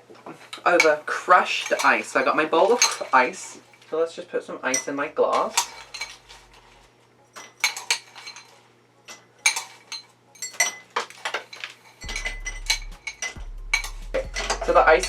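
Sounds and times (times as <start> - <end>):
crushed ice clinking into glass: 4.7 - 15.0.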